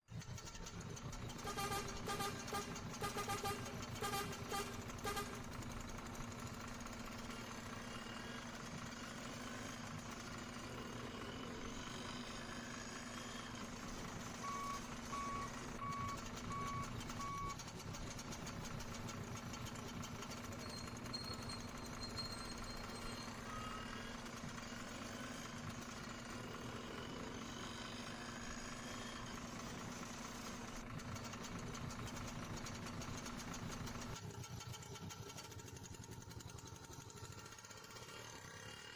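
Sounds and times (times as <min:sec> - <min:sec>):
truck engine idling: 0:00.1 - 0:38.9
reversing alarm beeping: 0:14.4 - 0:17.6, 0:20.6 - 0:24.1.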